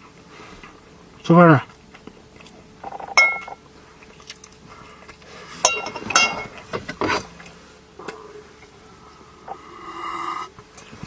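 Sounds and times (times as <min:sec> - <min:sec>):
utensils clinking against a dish: 0:02.8 - 0:03.6, 0:05.6 - 0:07.2.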